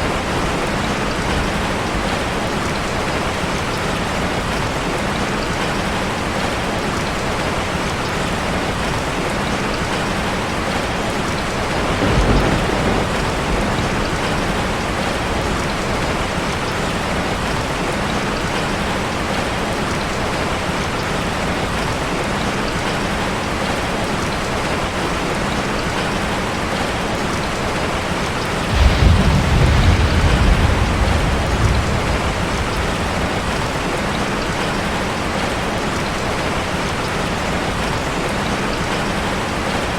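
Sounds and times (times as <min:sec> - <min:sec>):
heavy rain on a car: 0:00.0 - 0:39.9
thunder rumbling: 0:11.4 - 0:17.6, 0:28.5 - 0:35.4.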